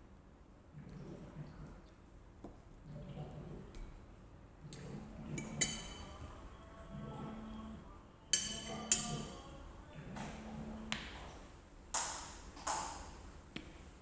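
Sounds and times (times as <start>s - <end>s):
cutlery clinking on a plate: 5.4s - 6.2s, 8.4s - 9.4s.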